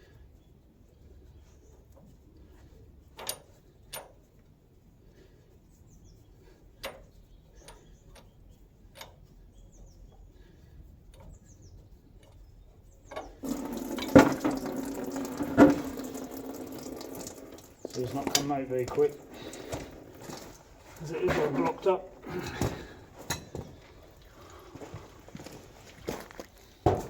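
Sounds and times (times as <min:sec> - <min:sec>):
oil running into container: 0:13.2 - 0:26.9.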